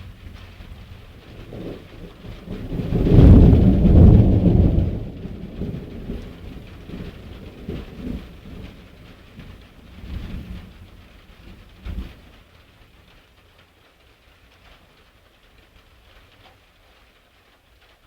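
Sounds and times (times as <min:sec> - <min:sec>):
thunder rolling rumble: 0:00.0 - 0:12.4
rain falling: 0:00.0 - 0:18.0.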